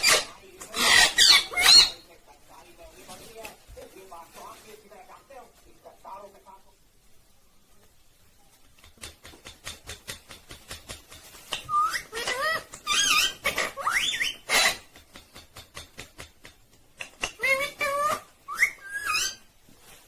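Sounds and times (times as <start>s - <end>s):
parrot warbling squawks: 0.0s - 2.1s, 11.6s - 14.8s, 17.2s - 19.5s
parrot clicking: 14.7s - 17.4s.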